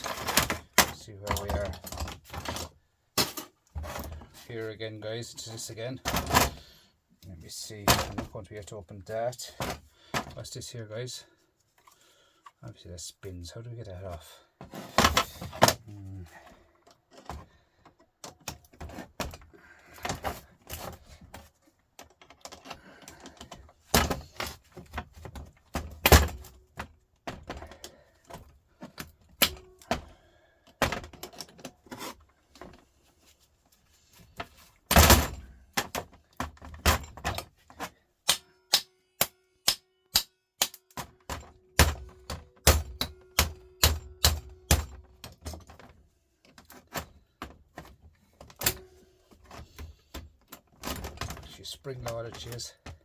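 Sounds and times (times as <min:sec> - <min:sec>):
hammer striking metal: 0:38.3 - 0:40.9.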